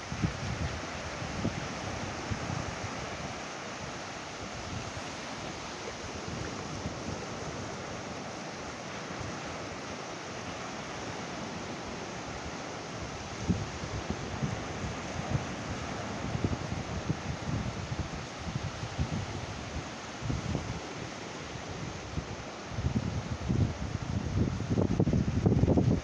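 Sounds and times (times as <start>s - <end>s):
wind buffeting microphone: 0.0s - 3.3s, 12.4s - 20.9s, 21.5s - 26.0s
ocean surf on beach: 0.0s - 26.0s.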